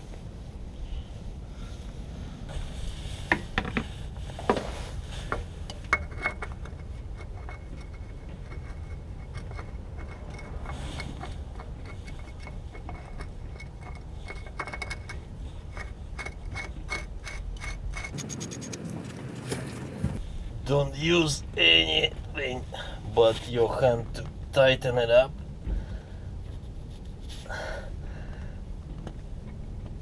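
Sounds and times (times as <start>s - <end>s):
oil filter scraping and clicking: 3.2s - 20.2s
wind rumble on microphone: 17.9s - 20.7s.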